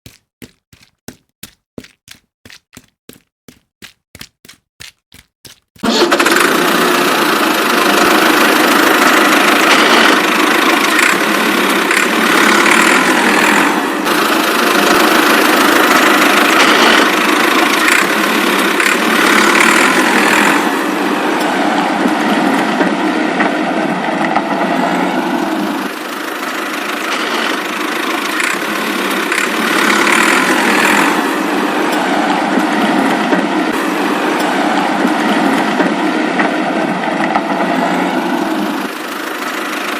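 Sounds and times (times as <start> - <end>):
small motor running: 5.8 - 20.8, 25.4 - 33.1.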